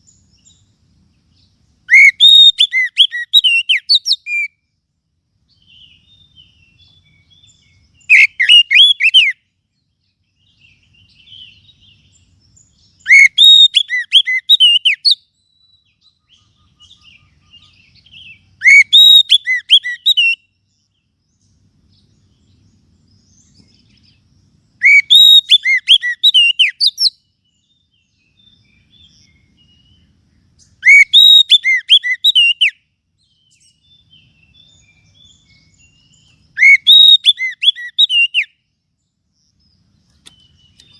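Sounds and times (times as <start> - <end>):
faint chirps: 0.0 - 40.9
bird whistled notes: 1.9 - 4.6, 7.0 - 9.4, 13.0 - 20.5, 24.8 - 27.2, 30.6 - 32.8, 33.5 - 38.6.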